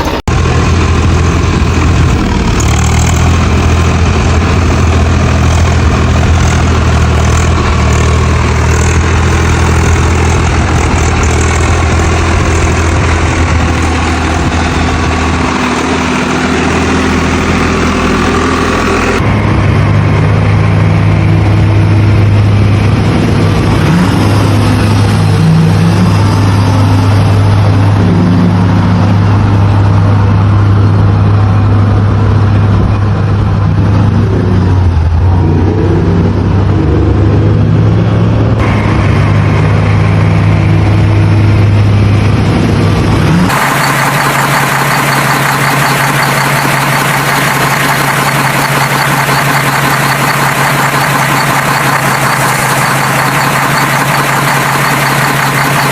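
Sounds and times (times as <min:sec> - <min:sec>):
vehicle engine idling: 0:43.5 - 0:55.9.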